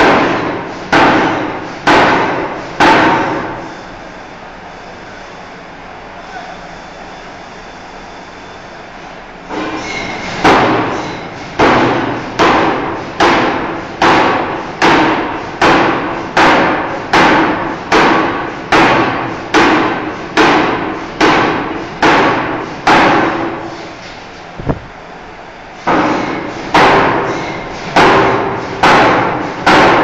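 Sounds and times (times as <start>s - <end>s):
forging hammer striking steel: 0.0s - 3.7s, 9.5s - 23.8s, 25.9s - 30.0s.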